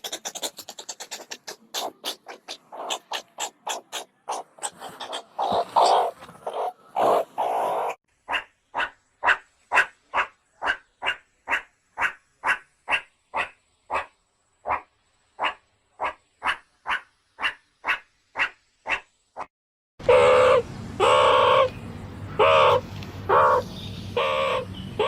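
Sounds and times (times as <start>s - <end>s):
animal crying: 0.0s - 12.1s, 20.0s - 21.7s, 22.4s - 23.6s, 24.2s - 25.0s
short evenly spaced animal calls: 0.0s - 21.8s, 22.4s - 25.0s.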